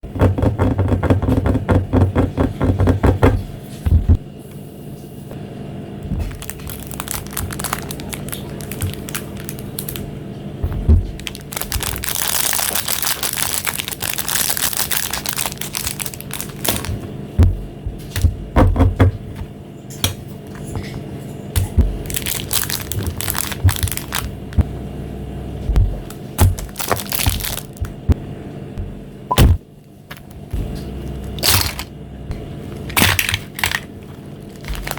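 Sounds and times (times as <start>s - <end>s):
taps and knocks: 0.0s - 4.2s
plastic wrappers crinkling: 6.2s - 10.1s, 10.7s - 17.1s, 21.6s - 24.6s, 26.0s - 28.0s, 30.1s - 31.9s, 32.7s - 34.9s.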